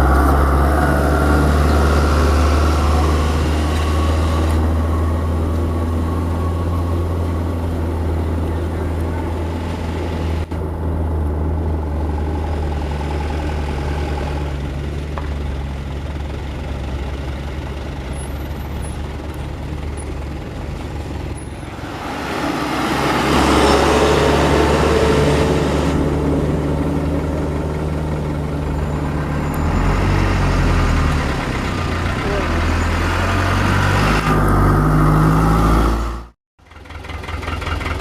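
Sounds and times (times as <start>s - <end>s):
truck diesel engine running: 0.0s - 33.5s, 36.6s - 38.0s
loud rushing noise: 21.7s - 27.3s.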